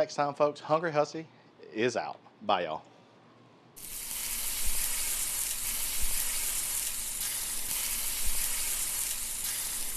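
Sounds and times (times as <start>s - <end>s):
food frying sizzle: 3.8s - 9.9s.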